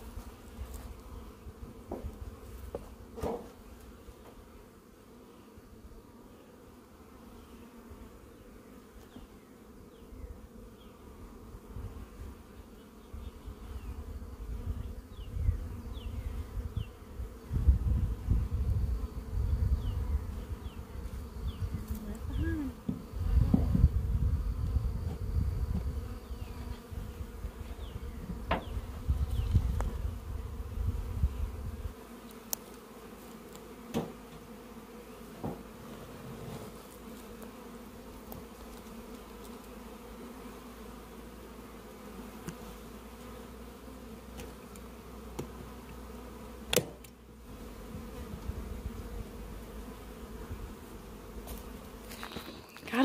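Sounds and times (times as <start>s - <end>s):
bees buzzing: 0.0s - 53.0s.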